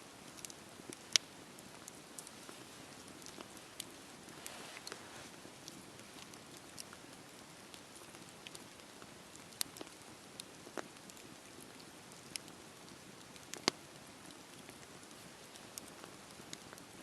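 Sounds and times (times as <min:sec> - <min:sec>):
campfire crackling: 0:00.0 - 0:17.0
hiss of flames: 0:04.2 - 0:05.5.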